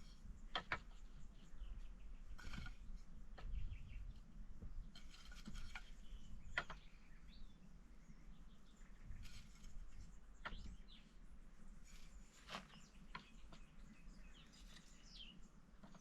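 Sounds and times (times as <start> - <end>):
faint scrapes and knocks: 2.2 - 6.8, 9.0 - 10.8, 11.7 - 16.0
bird chirps: 5.7 - 11.2, 11.8 - 16.0.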